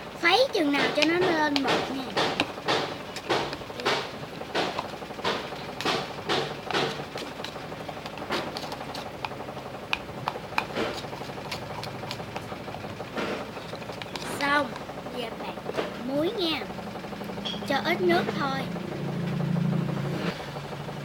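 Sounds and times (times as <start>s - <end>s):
low steady hum: 0.0s - 21.0s
utensil whisking foam in jar: 0.2s - 15.8s.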